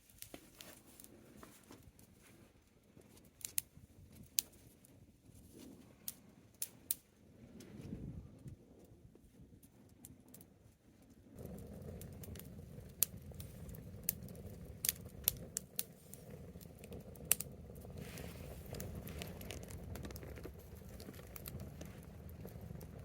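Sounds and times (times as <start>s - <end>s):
bonfire crackling and popping: 0.0s - 23.0s
low steady rumble: 11.2s - 23.0s.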